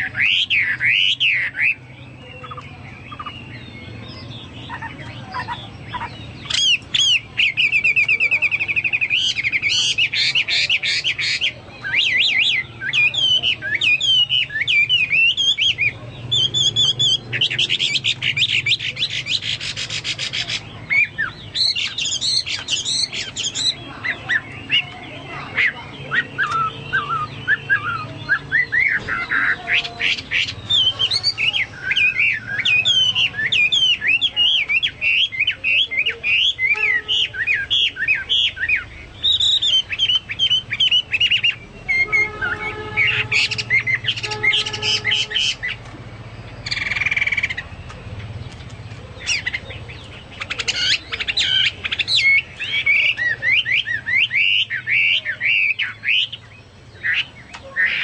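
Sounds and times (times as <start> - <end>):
bird singing whistled phrases: 0.0 - 45.8, 49.3 - 58.0
harsh bird note: 41.2 - 45.8.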